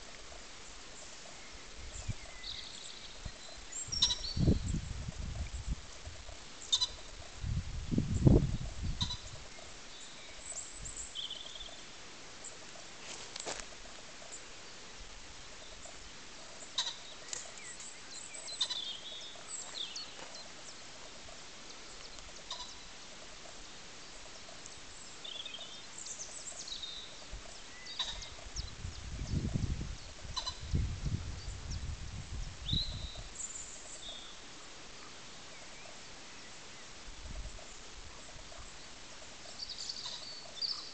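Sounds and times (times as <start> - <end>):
faint steady hiss: 0.0 - 40.9
high bird chirps: 3.5 - 4.8, 6.7 - 7.0, 16.8 - 20.1.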